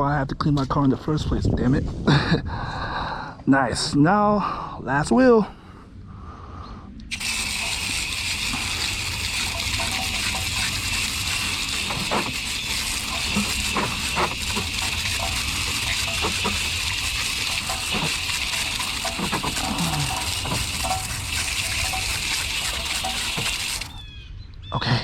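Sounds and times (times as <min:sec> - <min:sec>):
hose spraying water on wheel: 0:07.1 - 0:24.0.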